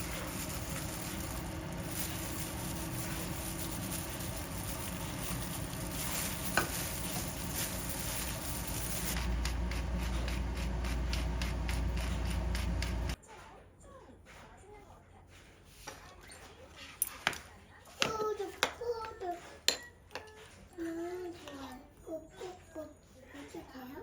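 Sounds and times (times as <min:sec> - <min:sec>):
food sizzling: 0:00.0 - 0:13.2.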